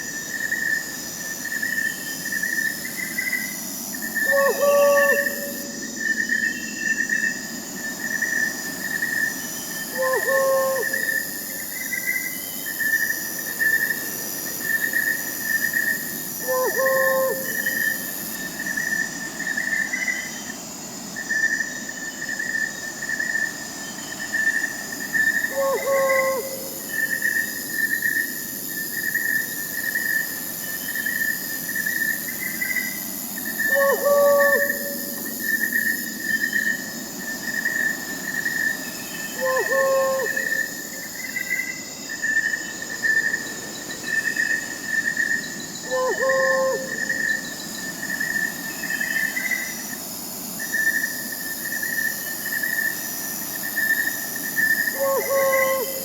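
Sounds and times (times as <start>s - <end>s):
crickets chirping: 0.0s - 56.0s
owl hooting: 4.2s - 5.8s, 9.9s - 11.3s, 16.4s - 18.0s, 25.4s - 27.2s, 33.6s - 35.3s, 39.3s - 41.0s, 45.8s - 47.4s, 54.9s - 56.0s.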